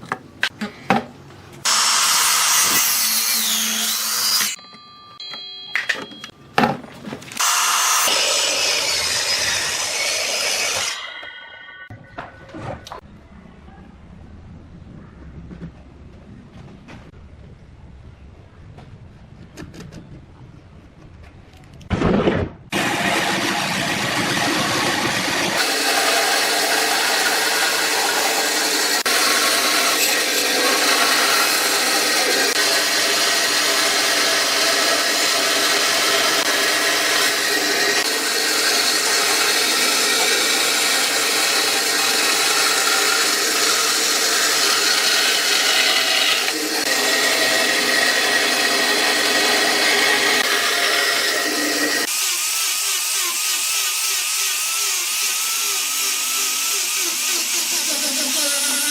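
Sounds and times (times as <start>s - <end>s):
power tool cutting wood: 1.6s - 4.6s, 7.4s - 11.9s, 22.7s - 58.9s.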